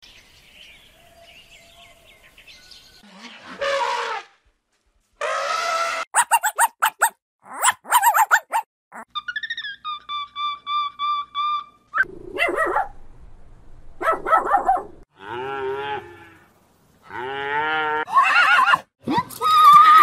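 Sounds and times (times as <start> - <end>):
cattle mooing: 15.1 - 16.4, 17.1 - 18.1.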